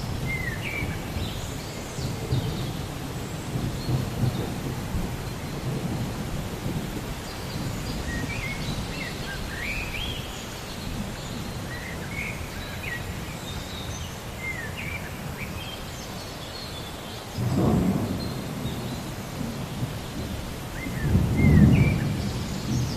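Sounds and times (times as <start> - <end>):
low rumble of thunder: 0.0 - 10.2, 17.4 - 22.9
steady rain: 0.0 - 22.9.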